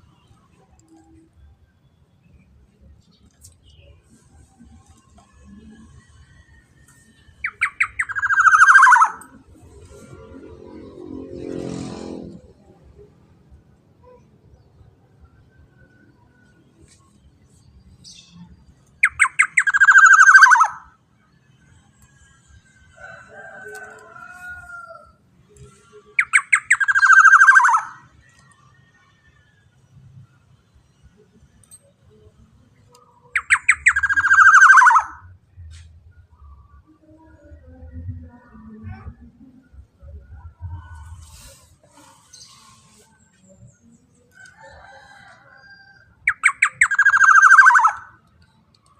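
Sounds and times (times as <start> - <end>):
faint scattered sounds: 0.0 - 19.1, 28.0 - 46.6
oriole calling with rattling trill: 4.9 - 11.0, 19.0 - 20.9, 26.1 - 28.6, 33.0 - 35.3, 44.4 - 48.5.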